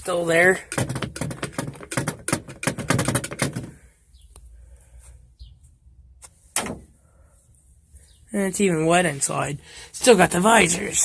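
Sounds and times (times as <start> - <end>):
clattering clicks and knocks: 0.6 - 3.9.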